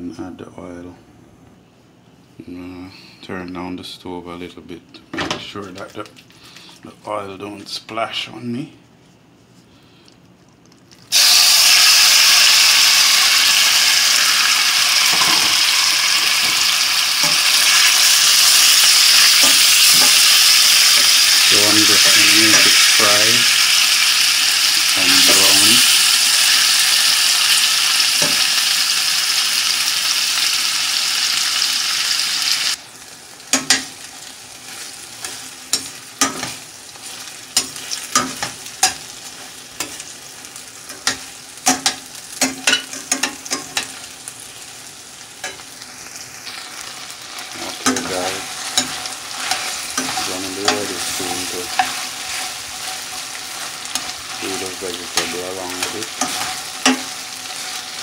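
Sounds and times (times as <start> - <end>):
chicken sizzling in oil: 11.1 - 58.0
metal utensils clinking and scraping: 18.6 - 23.4, 47.7 - 57.8.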